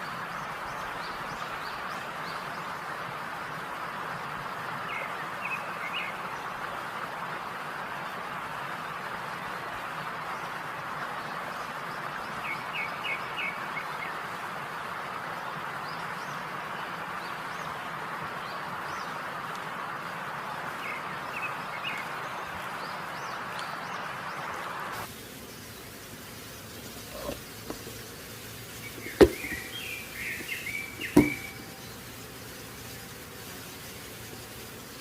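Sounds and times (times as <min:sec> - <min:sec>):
food sizzling in hot oil: 0:24.9 - 0:35.0
oil popping and crackling: 0:25.0 - 0:34.8.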